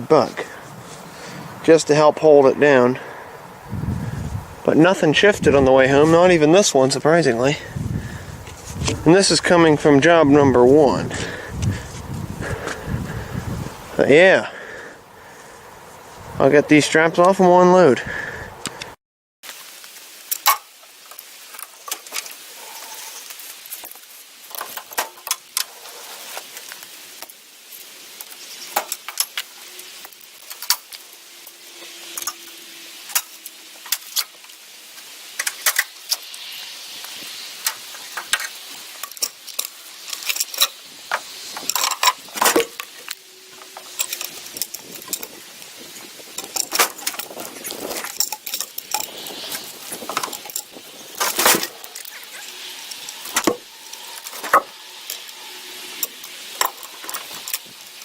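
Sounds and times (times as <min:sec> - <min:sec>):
ratchet straps clicking and jangling: 0:20.3 - 0:58.0.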